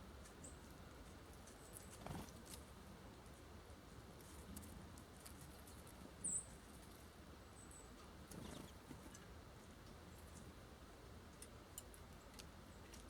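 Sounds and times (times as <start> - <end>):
birds scratching at feeder: 0.2 - 3.4, 4.0 - 7.2, 8.0 - 9.3.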